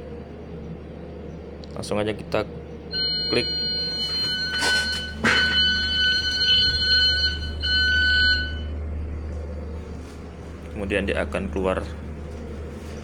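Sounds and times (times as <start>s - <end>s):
steady low hum: 0.0s - 13.0s
electronic alarm beeping tone: 2.9s - 8.8s.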